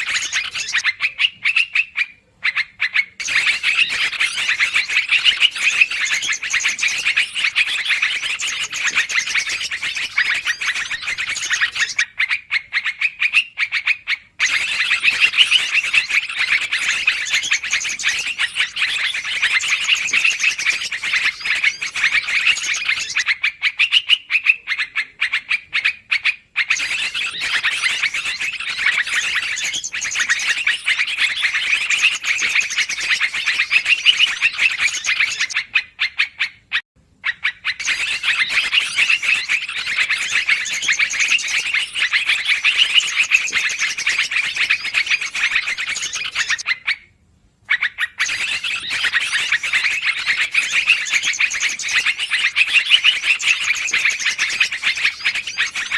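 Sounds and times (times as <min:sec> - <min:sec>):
bulbuls chattering: 0:00.0 - 0:12.0, 0:14.4 - 0:23.4, 0:24.4 - 0:35.7, 0:37.6 - 0:46.6.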